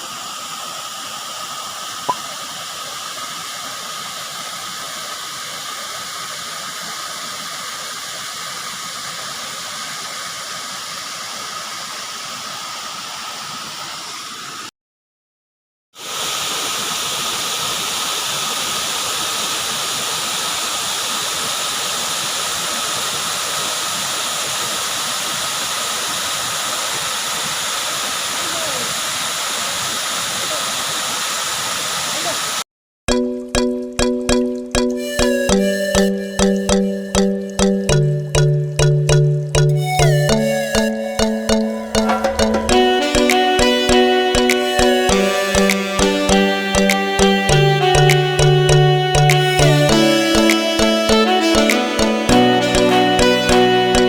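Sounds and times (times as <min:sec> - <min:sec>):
waterfall rushing: 0:16.0 - 0:32.4, 0:39.8 - 0:54.0.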